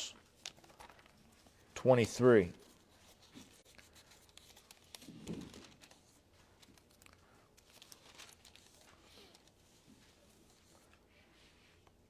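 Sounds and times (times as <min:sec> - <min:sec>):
thin pages being turned: 0:00.3 - 0:01.6, 0:02.6 - 0:09.6.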